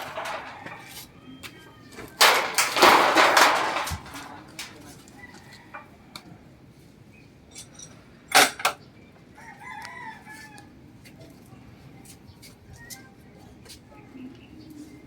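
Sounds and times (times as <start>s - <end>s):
rooster crowing: 5.2s - 6.3s, 9.4s - 10.7s.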